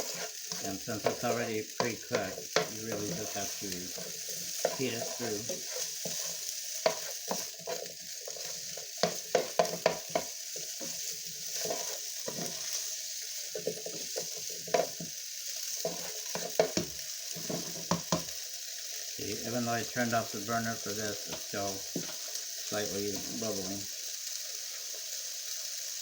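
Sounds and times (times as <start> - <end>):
utensil knocking and scraping pan: 0.0 - 12.7, 13.5 - 15.1, 15.8 - 18.3
chicken sizzling in a pan: 0.0 - 26.0.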